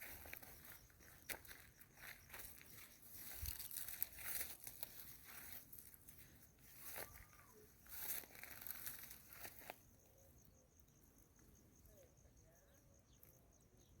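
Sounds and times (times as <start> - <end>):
rustling in dry vegetation: 0.0 - 10.0.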